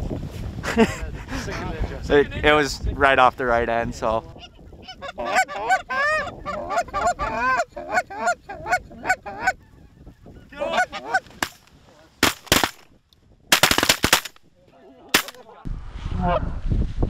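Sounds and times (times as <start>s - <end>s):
geese honking: 4.4s - 11.3s
shotgun shots: 12.2s - 12.8s, 13.5s - 14.4s, 15.1s - 15.5s.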